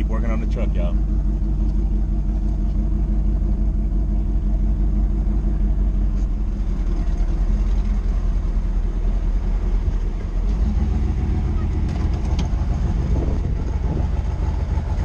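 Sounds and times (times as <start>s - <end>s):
car engine running at low revs: 0.0s - 15.0s.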